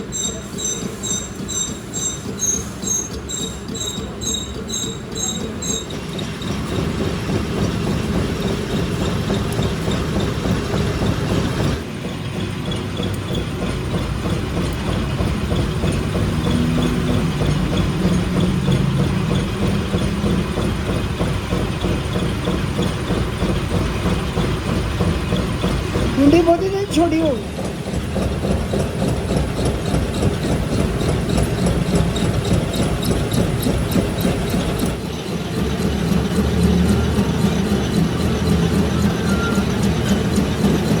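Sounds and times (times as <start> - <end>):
workshop machinery running: 0.0 - 41.0.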